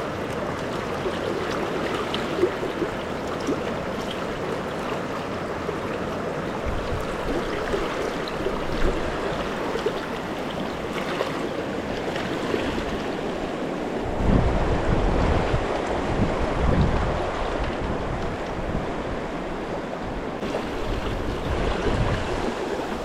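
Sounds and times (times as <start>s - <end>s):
river water rushing over rocks: 0.0s - 23.0s
wind buffeting microphone: 6.5s - 23.0s.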